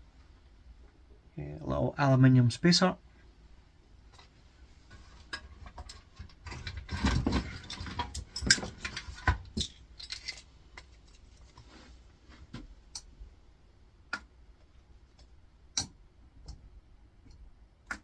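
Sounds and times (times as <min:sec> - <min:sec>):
small metal parts clinking: 0:06.5 - 0:11.2.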